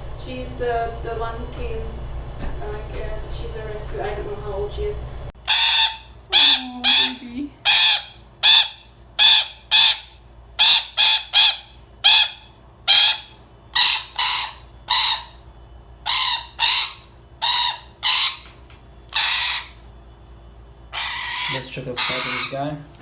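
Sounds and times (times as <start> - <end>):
parrot squawking: 5.4 - 15.4, 16.0 - 19.8, 20.9 - 22.8.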